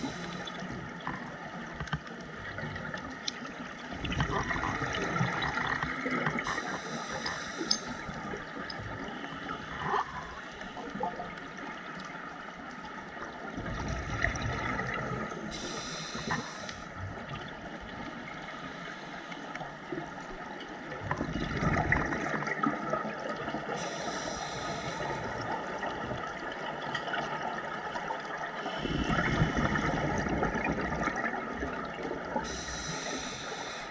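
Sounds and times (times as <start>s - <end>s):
regulator hiss: 0.0s - 0.8s, 6.5s - 8.2s, 15.5s - 17.0s, 18.4s - 19.6s, 23.8s - 25.4s, 32.4s - 33.9s
underwater bubbles gurgling: 0.0s - 33.9s.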